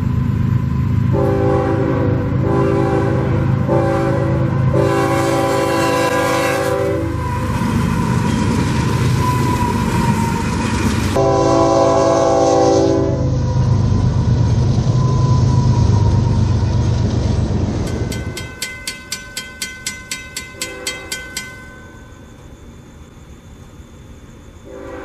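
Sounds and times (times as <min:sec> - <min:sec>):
train passing rumble: 0:00.0 - 0:25.0
train horn chord: 0:01.1 - 0:07.3, 0:11.2 - 0:13.4, 0:20.6 - 0:21.3, 0:24.7 - 0:25.0
crossing warning bell ringing: 0:02.4 - 0:12.6, 0:17.8 - 0:25.0.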